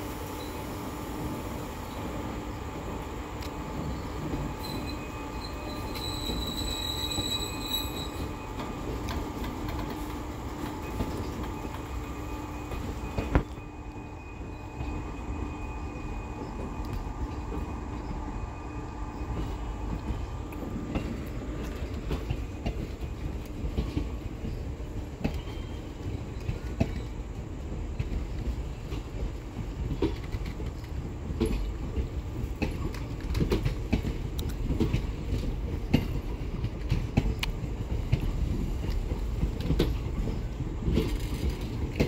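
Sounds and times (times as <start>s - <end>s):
train wheels rumbling on rail: 0.0s - 42.0s
high wheel squeal: 3.9s - 8.6s.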